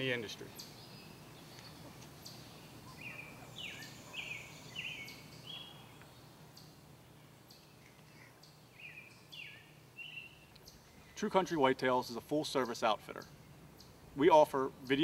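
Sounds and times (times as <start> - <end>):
songbird singing whistled notes: 0.5 - 6.8, 7.5 - 11.2.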